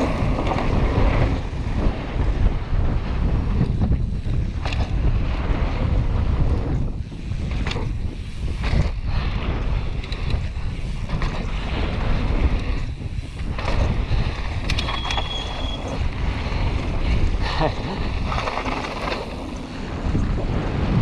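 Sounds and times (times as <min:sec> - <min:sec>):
wind buffeting microphone: 0:00.0 - 0:21.0
short high squeal: 0:14.8 - 0:16.0.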